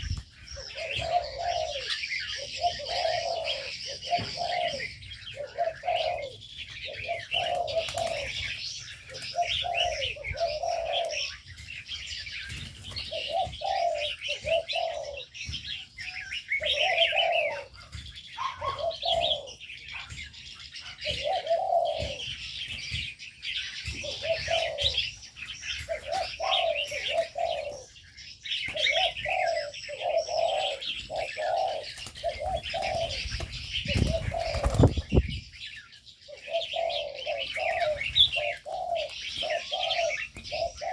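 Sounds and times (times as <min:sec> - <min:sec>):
doves cooing: 0:00.0 - 0:40.9
small birds chirping: 0:00.0 - 0:40.9.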